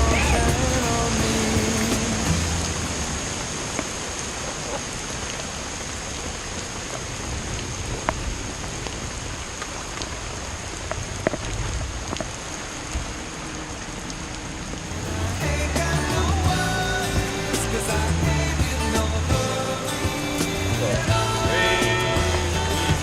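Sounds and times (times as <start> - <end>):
low rumble: 0.0 - 3.8
raindrops ticking close by: 0.0 - 23.0
steady rain falling: 0.0 - 23.0.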